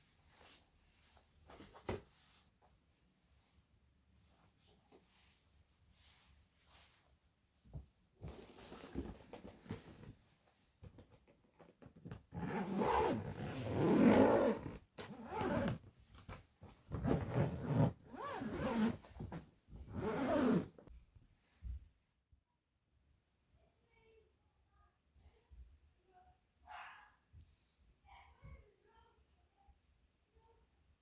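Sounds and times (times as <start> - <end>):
zipper rasping: 12.3 - 15.8, 16.9 - 19.0, 19.9 - 20.8.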